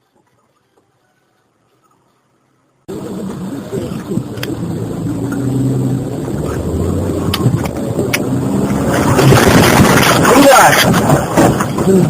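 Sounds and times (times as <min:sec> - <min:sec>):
loud rush of noise: 0:02.9 - 0:12.0
vehicle engine running: 0:02.9 - 0:12.0.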